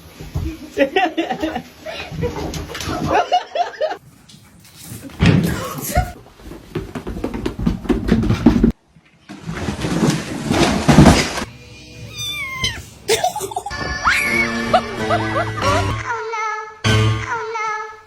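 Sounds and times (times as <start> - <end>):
cat meowing: 12.0 - 13.0
background music: 13.4 - 17.8.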